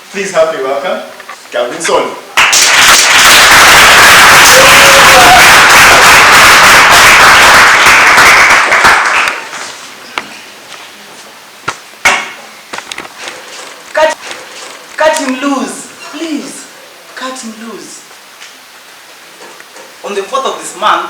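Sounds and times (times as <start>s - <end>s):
audience applauding: 2.4s - 9.6s.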